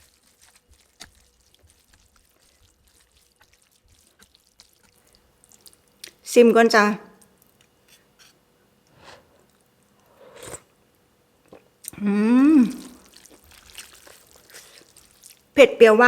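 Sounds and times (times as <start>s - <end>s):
sips and mouth sounds: 10.0s - 10.7s, 11.4s - 15.4s
person humming mmm: 11.9s - 13.0s.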